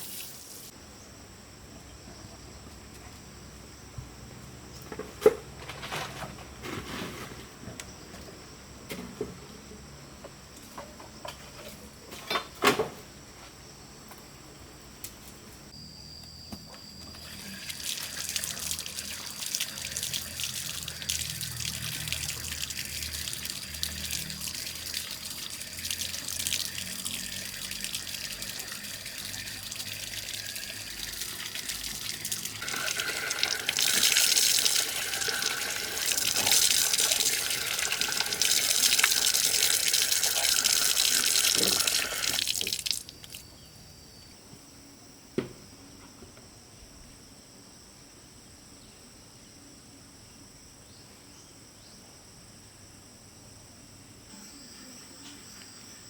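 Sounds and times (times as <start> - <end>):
water running: 17.2 - 43.4.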